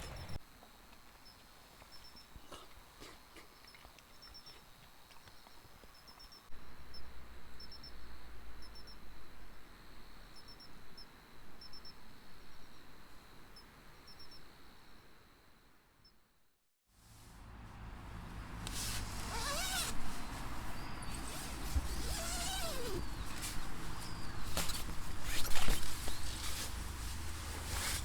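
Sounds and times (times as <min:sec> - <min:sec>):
crickets chirping: 0:00.0 - 0:16.3.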